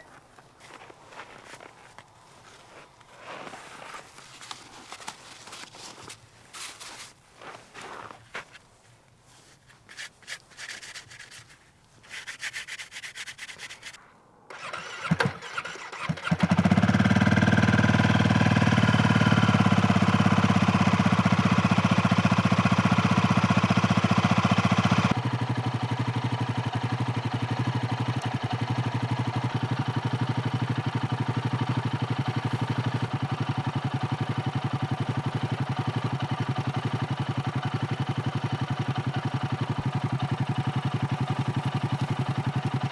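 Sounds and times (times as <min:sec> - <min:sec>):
rustling and handling noises: 0:00.0 - 0:14.2, 0:32.3 - 0:33.2
engine cranking: 0:09.9 - 0:21.0, 0:30.0 - 0:34.8
motorcycle engine idling: 0:15.9 - 0:42.9.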